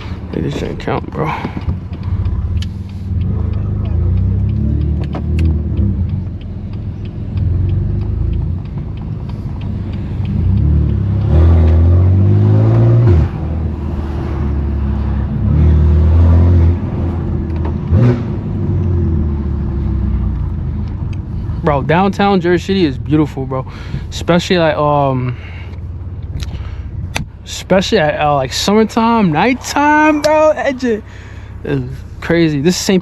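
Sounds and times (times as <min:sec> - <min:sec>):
light regular ticking: 0:00.0 - 0:12.1, 0:18.6 - 0:33.0
car engine droning: 0:00.0 - 0:33.0.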